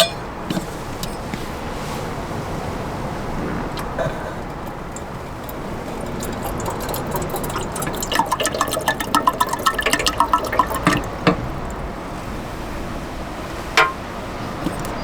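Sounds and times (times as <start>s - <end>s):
water pouring and gurgling: 3.8s - 12.7s.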